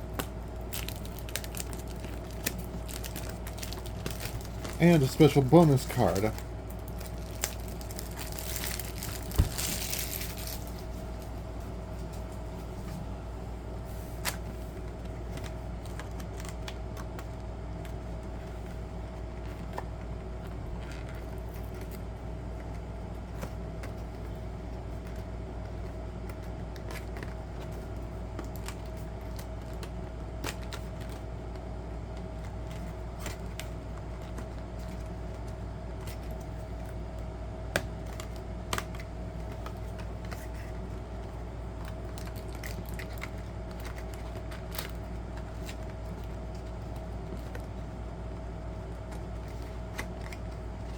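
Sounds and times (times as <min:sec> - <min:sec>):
plastic wrapping crinkling: 0:00.0 - 0:12.3, 0:41.8 - 0:47.7
background hum: 0:00.0 - 0:50.9.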